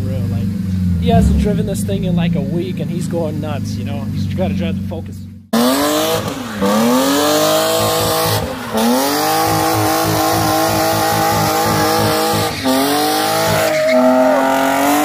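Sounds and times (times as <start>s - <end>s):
car engine revving hard: 0.0s - 4.5s, 5.5s - 15.0s
tyres squealing: 8.0s - 15.0s.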